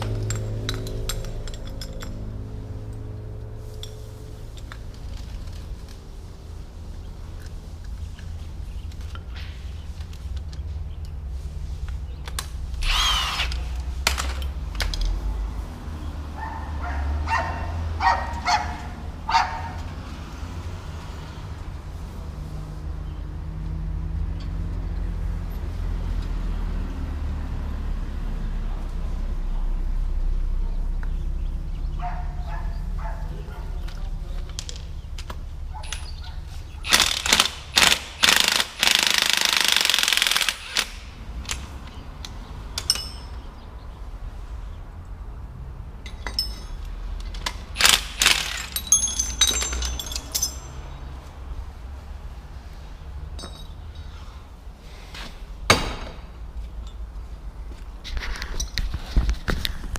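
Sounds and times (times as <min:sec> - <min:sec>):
low steady rumble: 0:28.1 - 0:36.9
rattling burst: 0:36.8 - 0:41.7, 0:47.5 - 0:50.4
sharp metallic bangs: 0:55.6 - 0:56.5.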